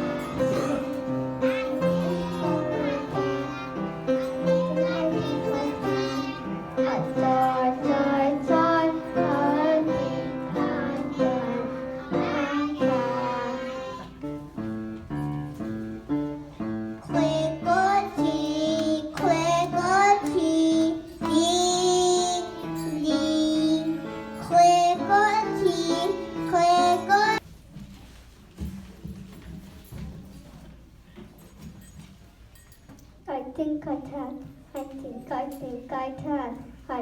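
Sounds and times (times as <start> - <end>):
children singing: 0.0 - 14.3, 17.0 - 27.4
guitar accompaniment: 0.0 - 27.4.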